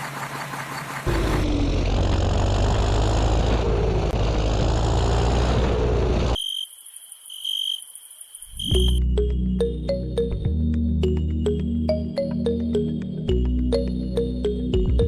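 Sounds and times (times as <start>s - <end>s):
engine running with low hum: 0.0s - 6.4s.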